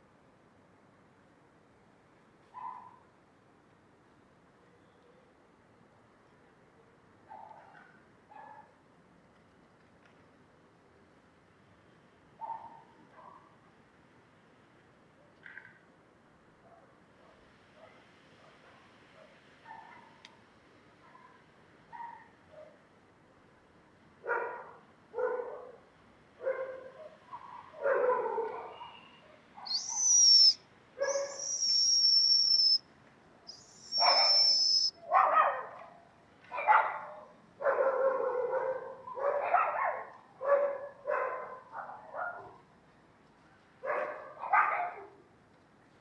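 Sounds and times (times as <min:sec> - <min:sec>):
animal calling in short bursts: 0:29.7 - 0:32.8, 0:33.5 - 0:34.9
long high whistling tones: 0:29.7 - 0:32.8, 0:33.5 - 0:34.9.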